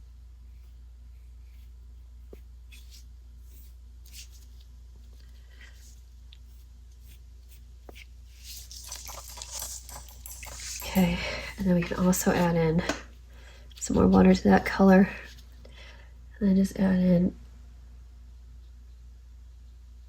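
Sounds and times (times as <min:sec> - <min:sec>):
steady low hum: 0:00.0 - 0:20.0
paintbrush brushing on paper: 0:00.4 - 0:12.8.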